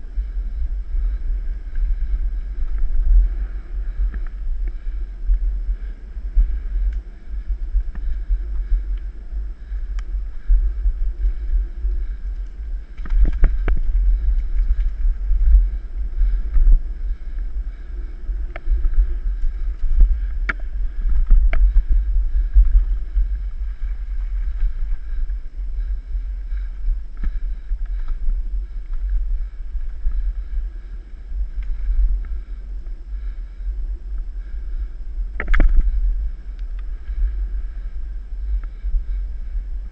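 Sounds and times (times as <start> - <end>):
wind rumbling on microphone: 0.0 - 39.9.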